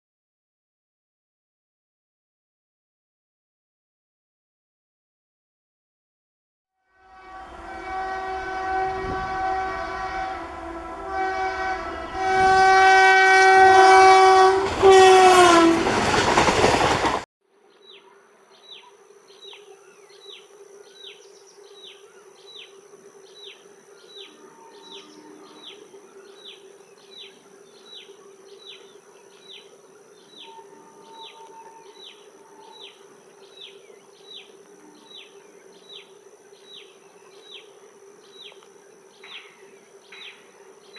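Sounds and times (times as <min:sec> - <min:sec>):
locomotive horn blasts: 0:06.9 - 0:16.1
passing train rattle: 0:07.0 - 0:17.2.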